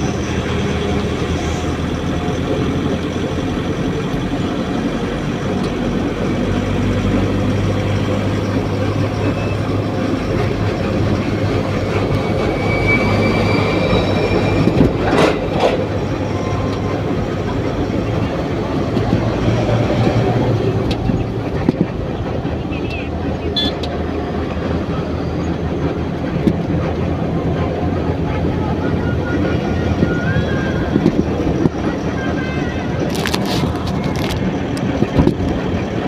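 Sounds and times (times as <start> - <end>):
heavy vehicle rumbling: 0.0 - 36.0
faint high squealing: 12.1 - 15.0.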